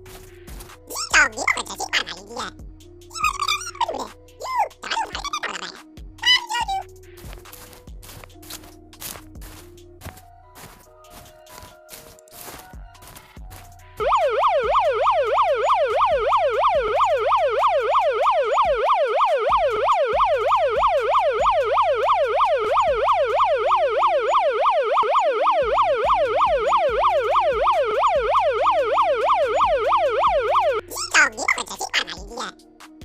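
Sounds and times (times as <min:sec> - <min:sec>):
police siren yelping: 0:00.9 - 0:06.9, 0:14.0 - 0:32.4.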